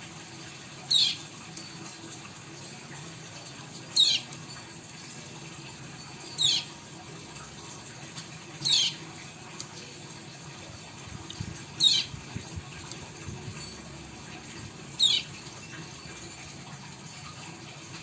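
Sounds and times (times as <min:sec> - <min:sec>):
bird chirping call: 0:00.9 - 0:01.2, 0:04.0 - 0:04.3, 0:06.3 - 0:06.7, 0:08.6 - 0:09.0, 0:11.8 - 0:12.1, 0:15.0 - 0:15.3.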